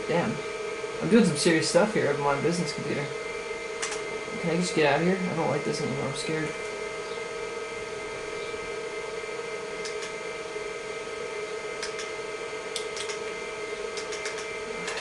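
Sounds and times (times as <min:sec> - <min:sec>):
computer fan and hard drive whine: 0:00.0 - 0:15.0
keyboard clicks: 0:03.8 - 0:04.0, 0:09.8 - 0:10.2, 0:11.8 - 0:13.3, 0:13.9 - 0:15.0.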